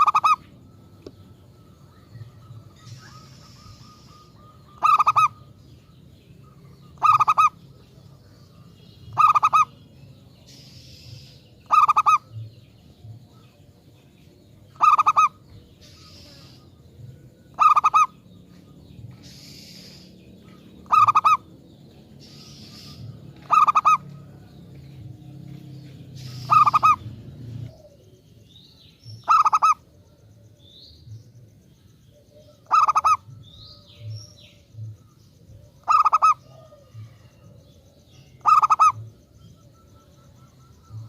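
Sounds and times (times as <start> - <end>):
dove cooing: 0.0 - 5.8, 6.4 - 8.4, 9.1 - 9.8, 11.7 - 12.6, 14.7 - 16.6, 17.4 - 18.2, 19.2 - 21.6, 22.2 - 24.5, 26.2 - 28.2, 29.2 - 30.5, 32.1 - 34.1, 35.5 - 41.0.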